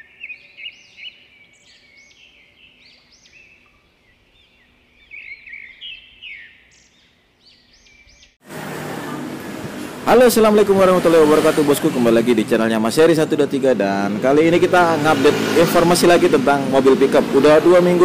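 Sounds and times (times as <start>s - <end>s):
birds chirping: 0.0s - 18.0s
loud rushing noise: 8.4s - 18.0s.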